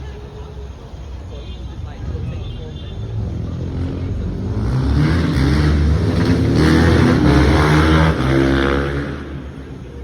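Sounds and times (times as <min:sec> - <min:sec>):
car engine revving: 0:03.7 - 0:09.7.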